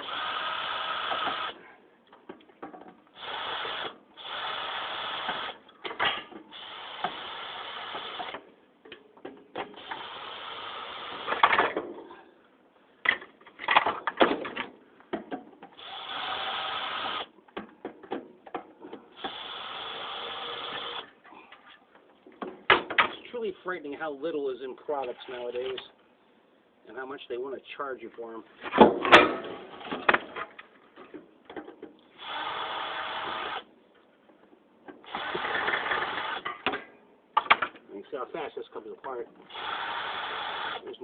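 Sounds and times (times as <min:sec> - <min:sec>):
power drill-driver running: 0:00.0 - 0:01.6, 0:03.2 - 0:05.6, 0:15.8 - 0:17.3, 0:19.2 - 0:21.0, 0:32.2 - 0:33.7, 0:35.1 - 0:36.4, 0:39.5 - 0:40.8.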